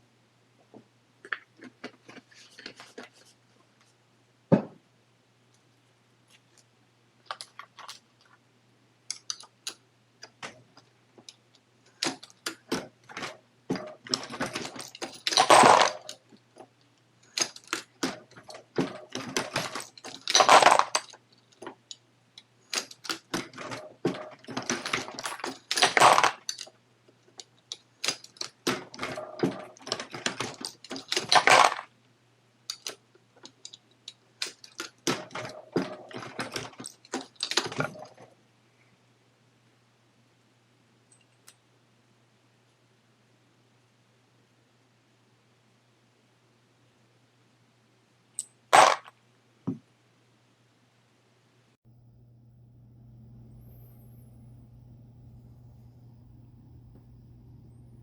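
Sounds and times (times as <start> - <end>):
reloading press clicking and clinking: 11.9 - 16.2, 17.3 - 21.7, 22.6 - 26.7, 27.4 - 31.9, 32.7 - 38.2
faint hum: 51.3 - 58.0.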